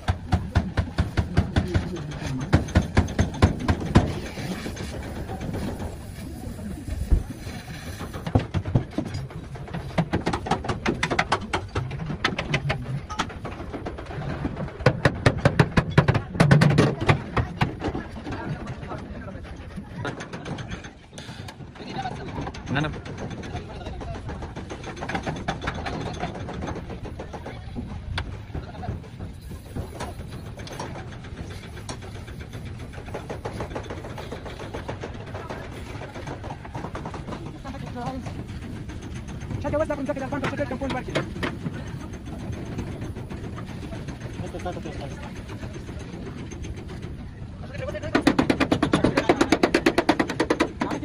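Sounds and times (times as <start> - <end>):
engine idling: 7.9 - 51.0.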